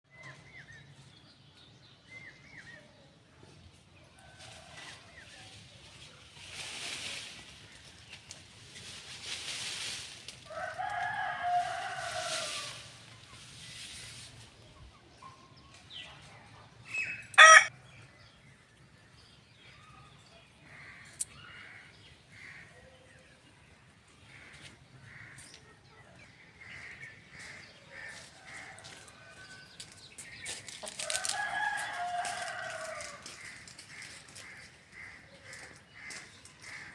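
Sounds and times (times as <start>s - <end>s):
rooster crowing: 10.5s - 12.8s, 17.3s - 17.7s, 31.0s - 33.2s.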